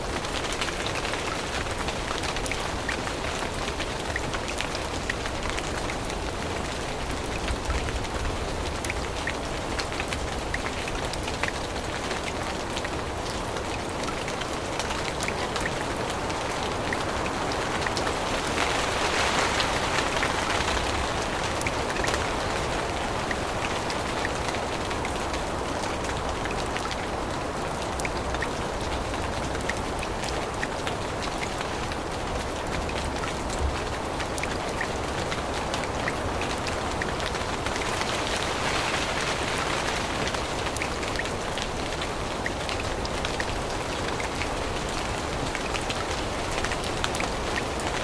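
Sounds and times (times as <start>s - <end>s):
rain falling through forest: 0.0s - 48.0s
raindrops ticking on leaves: 0.0s - 48.0s.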